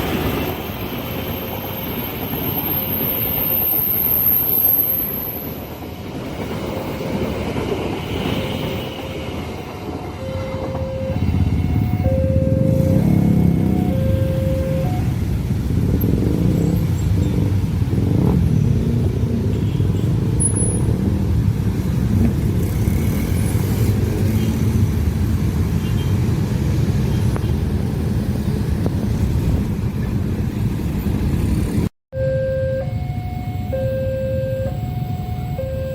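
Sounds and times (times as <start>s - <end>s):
train rumbling past: 0.0s - 19.5s.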